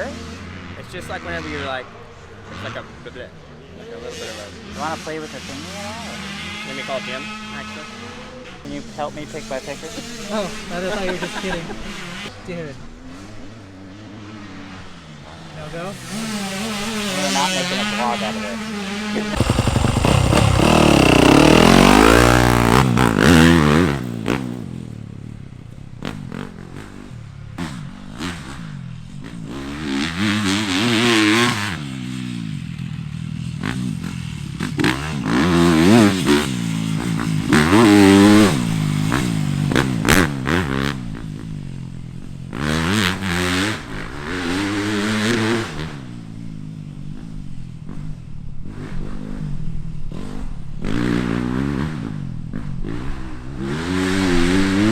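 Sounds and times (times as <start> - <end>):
motocross bike engine revving: 15.7 - 24.9, 33.5 - 41.8, 50.2 - 54.9.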